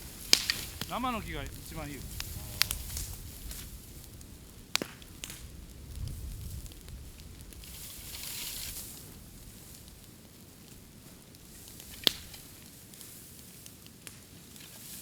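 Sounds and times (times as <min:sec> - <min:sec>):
bamboo fire hissing: 0:00.0 - 0:15.0
sharp pop from fire: 0:00.1 - 0:09.0, 0:11.5 - 0:13.2.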